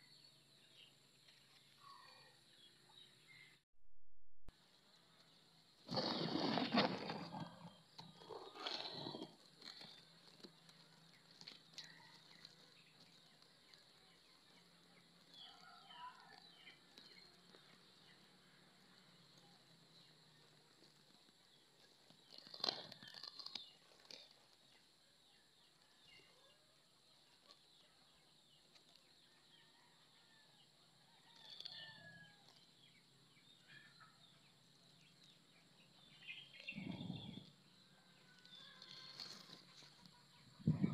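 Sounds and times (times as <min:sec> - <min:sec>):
faint bird chirps: 0:29.3 - 0:40.9.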